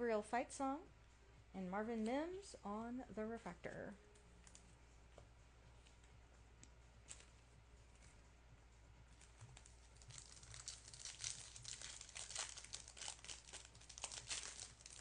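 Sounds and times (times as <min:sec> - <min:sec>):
foil wrapper tearing and crinkling: 0:09.2 - 0:15.0.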